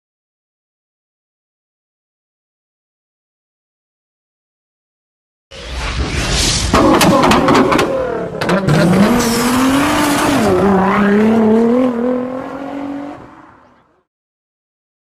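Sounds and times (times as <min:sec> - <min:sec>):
vehicle engine revving: 0:06.8 - 0:13.8.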